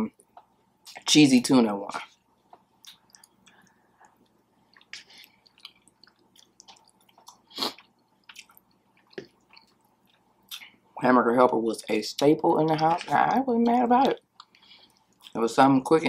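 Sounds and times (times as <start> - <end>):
wet chewing squishes and clicks: 2.1 - 10.8, 12.9 - 15.4.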